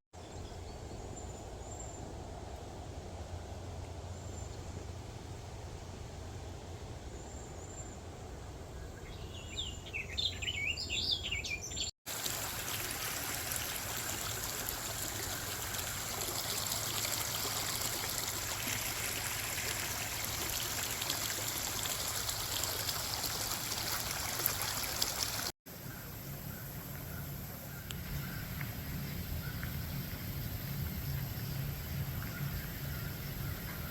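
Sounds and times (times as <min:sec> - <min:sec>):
low steady rumble: 0:00.2 - 0:09.6, 0:25.7 - 0:33.9
birds chirping: 0:08.8 - 0:11.9
running water: 0:12.0 - 0:25.6.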